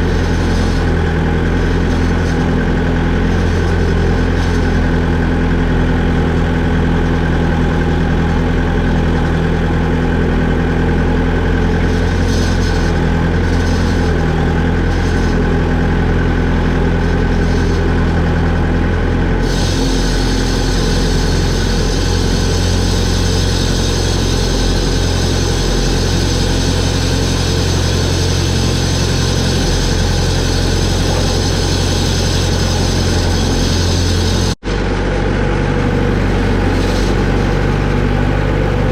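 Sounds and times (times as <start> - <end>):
vehicle engine idling: 0.0 - 38.9
bright hiss: 19.4 - 34.6.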